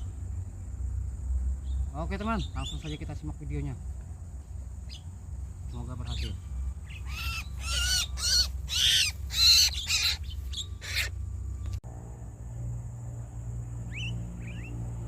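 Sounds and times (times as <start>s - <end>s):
low steady hum: 0.0s - 15.0s
harsh bird calls: 1.6s - 3.3s, 4.8s - 11.2s.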